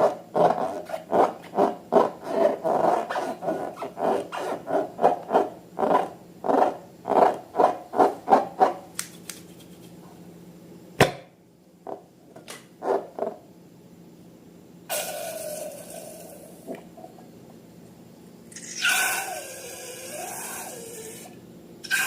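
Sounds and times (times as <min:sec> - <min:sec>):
rubbery squeezing strokes: 0:00.0 - 0:09.9, 0:18.6 - 0:22.0
sharp snap: 0:09.0 - 0:09.5.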